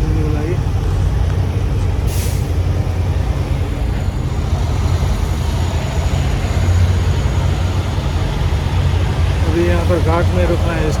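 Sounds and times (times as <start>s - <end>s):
diesel truck engine rumbling: 0.0s - 11.0s
air brake hiss: 2.1s - 2.6s.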